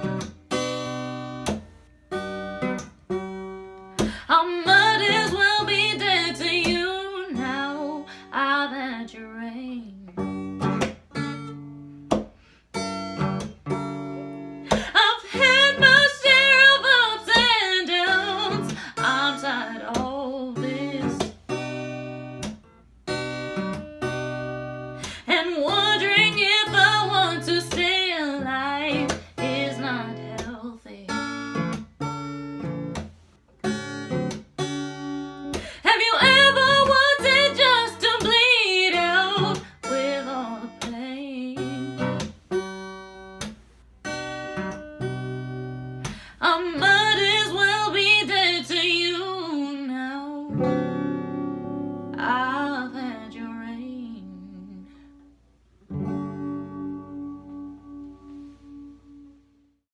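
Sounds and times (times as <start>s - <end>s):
acoustic guitar: 0.0s - 59.8s
person singing: 14.7s - 21.2s, 35.7s - 42.0s.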